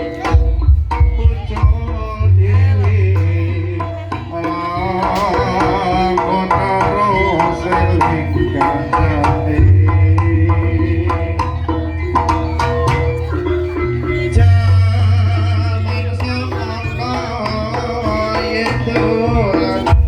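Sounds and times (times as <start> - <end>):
wavering melody line: 0.0 - 20.0
deep sustained bass: 0.3 - 4.2.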